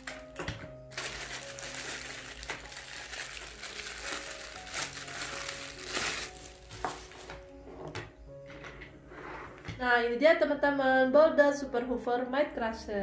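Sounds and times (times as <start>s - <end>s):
soft background music: 0.0s - 13.0s
plastic packaging crinkling: 0.8s - 7.4s.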